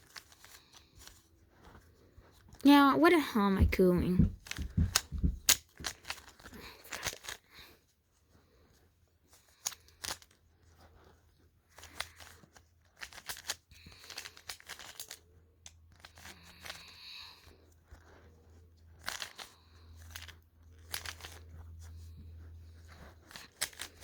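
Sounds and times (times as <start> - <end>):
puzzle cube clicking as turned: 4.5 - 7.4, 11.8 - 12.4, 13.0 - 15.2, 20.9 - 21.4, 23.3 - 24.0.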